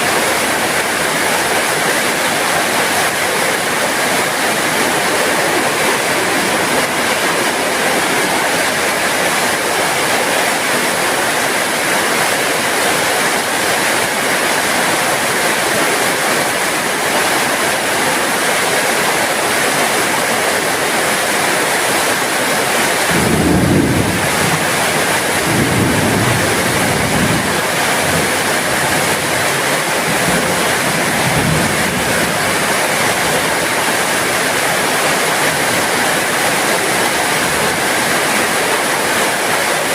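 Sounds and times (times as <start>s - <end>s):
heavy rain falling: 0.0s - 39.9s
thunder rumbling: 2.7s - 9.7s, 23.1s - 32.7s.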